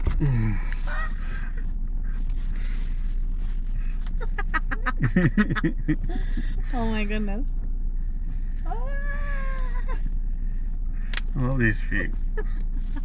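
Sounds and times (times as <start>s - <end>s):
steady low hum: 0.0s - 13.0s
woman giggling: 4.1s - 6.4s, 12.3s - 13.0s.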